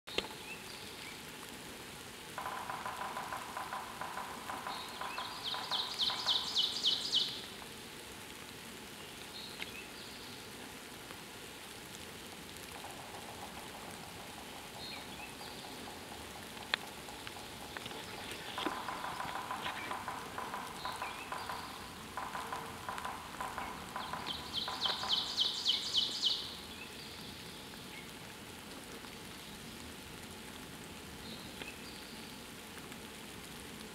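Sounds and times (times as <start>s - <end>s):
steady hiss: 0.1s - 33.9s
bird trilling: 17.0s - 26.4s.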